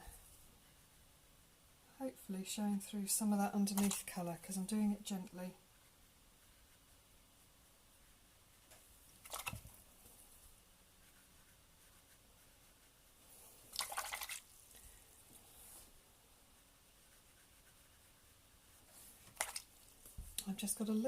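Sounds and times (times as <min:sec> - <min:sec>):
paintbrush swished in water: 0:03.6 - 0:04.2, 0:09.0 - 0:09.8, 0:13.3 - 0:15.9, 0:18.9 - 0:20.1.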